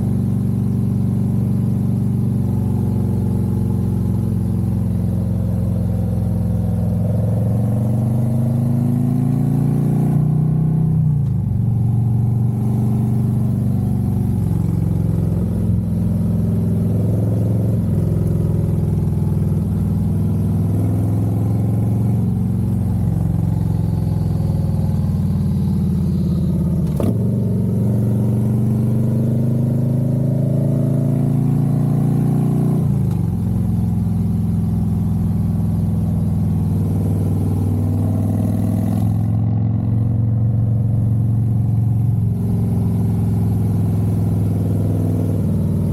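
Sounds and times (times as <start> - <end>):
motorcycle engine shifting gears: 0.0 - 45.9.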